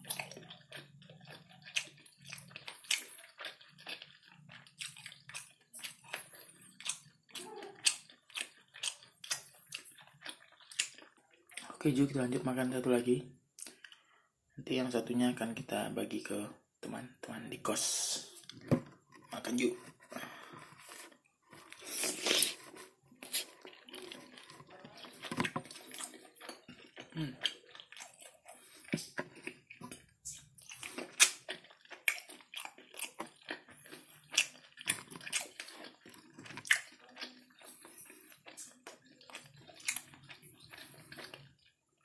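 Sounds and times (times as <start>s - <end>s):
wet chewing and mouth clicks: 0.0s - 12.1s, 13.5s - 14.2s, 18.2s - 42.0s
slurp: 20.6s - 30.4s.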